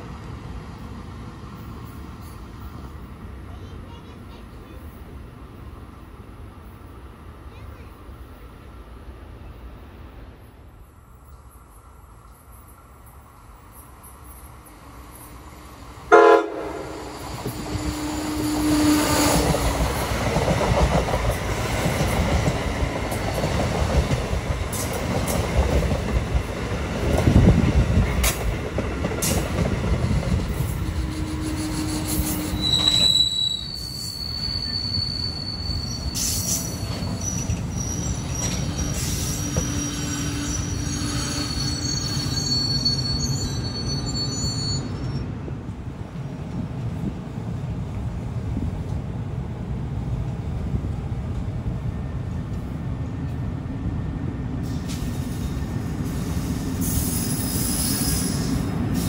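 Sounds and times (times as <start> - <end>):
train wheels rumbling: 11.2 - 59.0
rail-joint clacks: 19.3 - 33.1
high-pitched squealing: 30.7 - 45.2.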